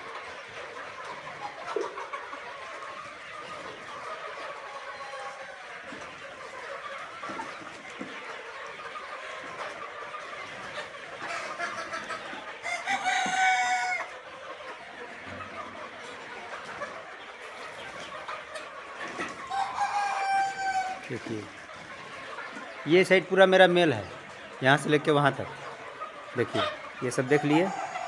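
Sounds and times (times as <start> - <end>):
roosters clucking: 0.0 - 28.0.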